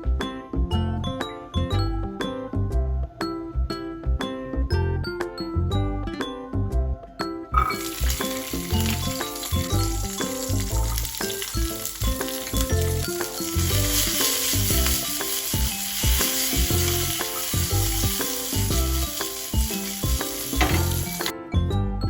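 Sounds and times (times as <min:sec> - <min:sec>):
background music with steady beat: 0:00.0 - 0:22.0
food sizzling in a pan: 0:07.6 - 0:21.3.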